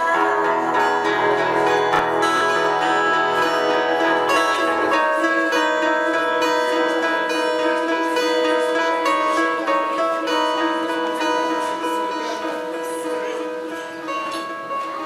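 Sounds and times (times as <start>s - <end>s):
low bass drone: 0.0s - 7.1s
sustained tones: 0.0s - 14.8s
plucked guitar notes: 0.0s - 15.0s.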